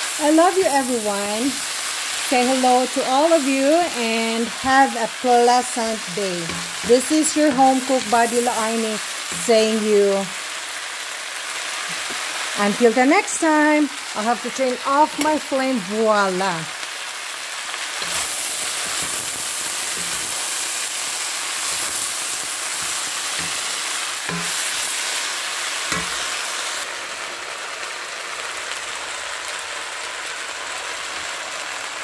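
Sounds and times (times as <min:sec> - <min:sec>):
food sizzling in a hot pan: 0:00.0 - 0:32.0.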